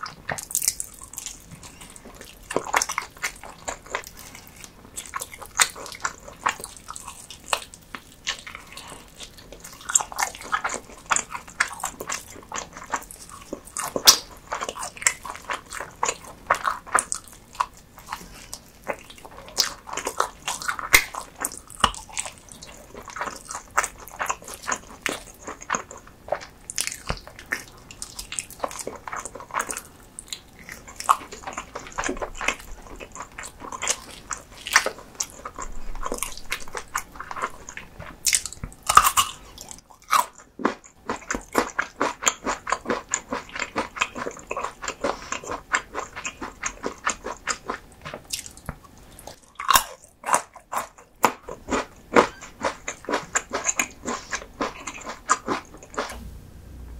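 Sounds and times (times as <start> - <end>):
wet chewing and biting: 0.0 - 56.3.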